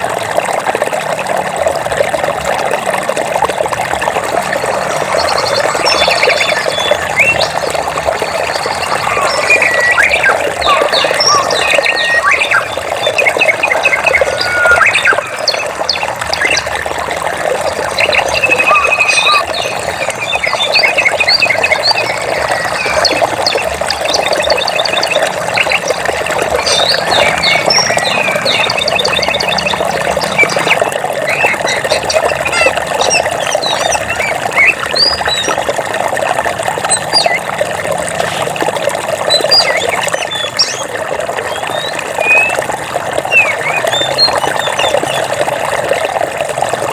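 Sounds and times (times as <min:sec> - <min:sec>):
continuous low chorus: 0:03.4 - 0:35.4
birds chirping and trilling: 0:04.6 - 0:35.7, 0:36.8 - 0:37.5, 0:39.2 - 0:45.5.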